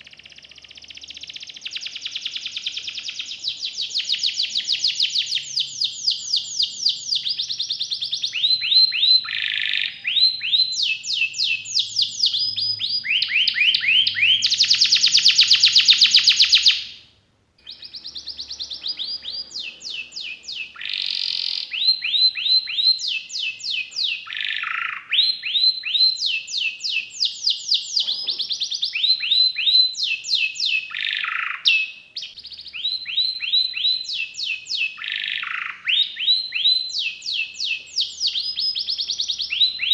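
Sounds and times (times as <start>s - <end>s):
canary singing trills: 0.0s - 17.0s, 17.6s - 39.9s.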